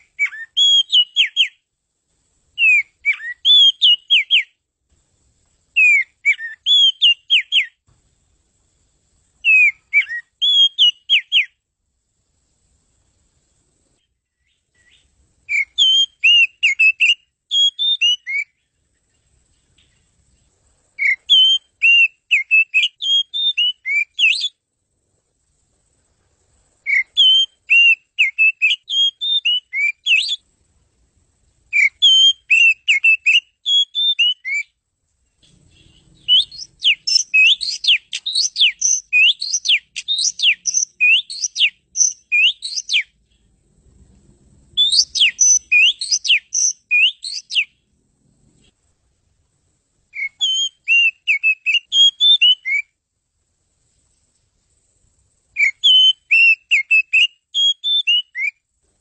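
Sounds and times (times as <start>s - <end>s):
bird singing whistled song: 0.0s - 1.7s, 2.6s - 4.6s, 5.7s - 7.8s, 9.4s - 11.6s, 14.0s - 20.2s, 21.0s - 24.6s, 26.8s - 30.5s, 31.7s - 34.8s, 35.4s - 43.4s, 44.7s - 47.8s, 50.1s - 53.0s, 55.5s - 58.6s.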